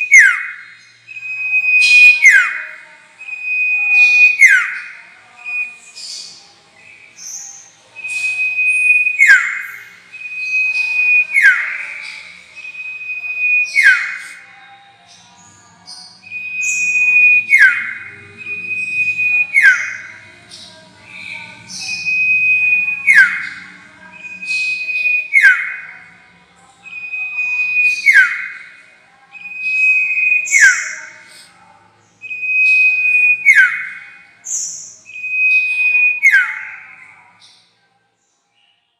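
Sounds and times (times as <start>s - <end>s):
whistled songbird lure call: 16.0s - 20.1s.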